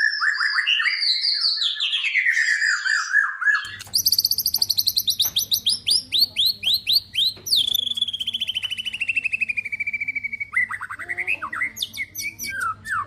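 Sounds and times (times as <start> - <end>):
bird whistling and chirping: 0.0 - 13.0.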